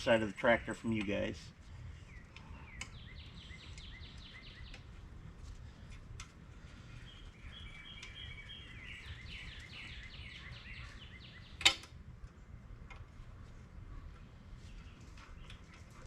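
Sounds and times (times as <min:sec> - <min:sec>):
low outdoor rumble: 0:00.0 - 0:16.0
bird chirping: 0:01.9 - 0:05.1, 0:06.8 - 0:11.7.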